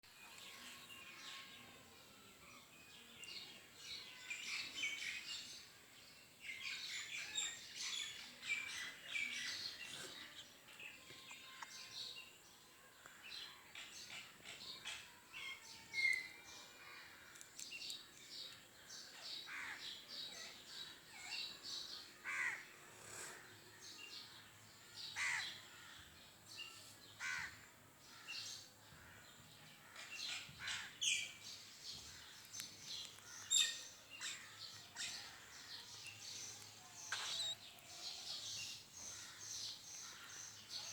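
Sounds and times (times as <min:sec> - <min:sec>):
parrots chattering and screeching: 0:36.5 - 0:37.6.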